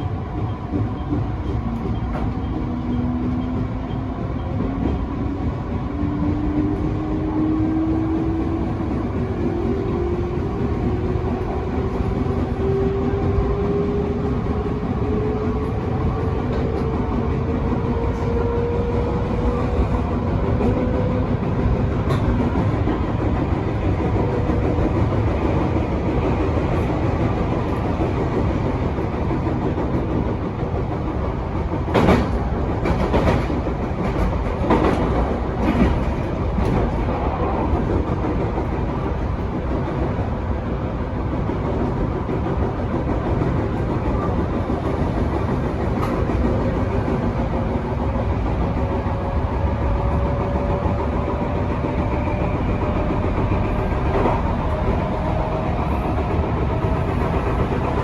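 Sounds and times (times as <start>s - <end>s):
electric train rumble and motor whine: 0.0s - 58.0s
wheels clacking over rail joints: 15.1s - 40.4s.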